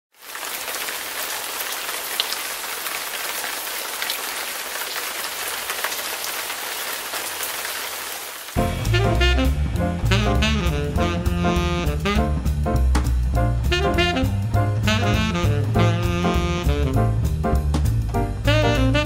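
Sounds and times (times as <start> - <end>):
steady rain: 0.1 - 12.0.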